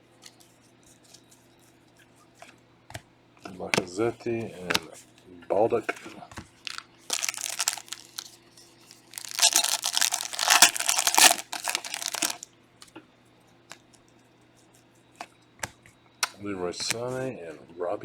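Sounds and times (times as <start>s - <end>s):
foil wrapper tearing and crinkling: 6.6s - 12.4s.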